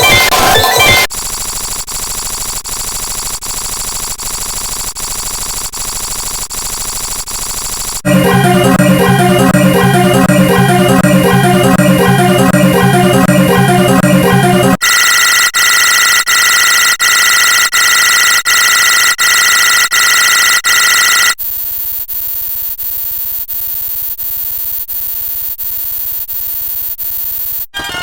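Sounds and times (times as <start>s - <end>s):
looping electronic ringtone: 8.0s - 21.4s.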